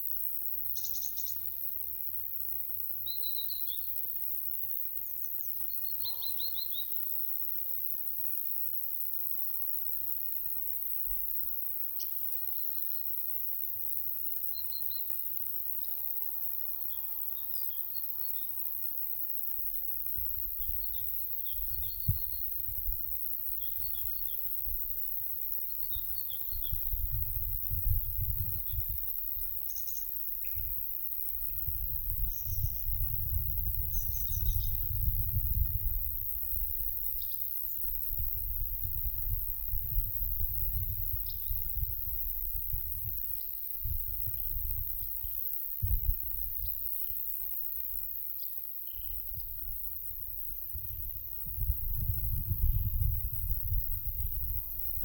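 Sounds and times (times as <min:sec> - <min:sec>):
wind buffeting microphone: 0:26.5 - 0:29.5, 0:31.4 - 0:36.9, 0:38.0 - 0:43.2, 0:49.3 - 0:55.0.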